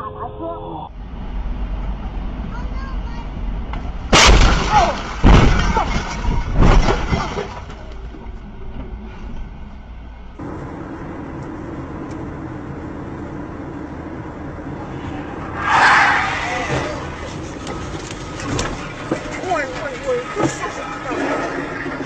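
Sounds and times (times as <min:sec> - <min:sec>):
vehicle engine and road noise: 0:00.0 - 0:22.0
loud vehicle impacts: 0:03.6 - 0:09.4, 0:14.5 - 0:22.0.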